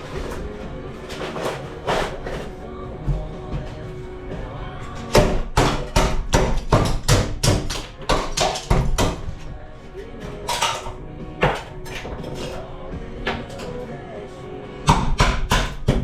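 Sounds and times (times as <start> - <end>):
background music: 0.0 - 16.0
hammer striking panels: 5.0 - 9.4, 14.9 - 16.0.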